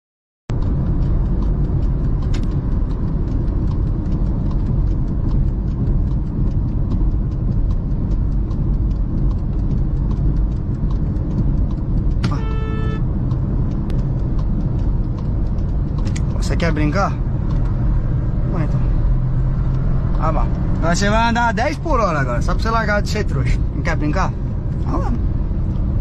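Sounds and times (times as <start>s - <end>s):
car road and engine rumble: 0.5s - 26.0s
sharp click: 1.4s - 12.8s, 13.7s - 17.8s
car horn honk: 12.2s - 13.1s.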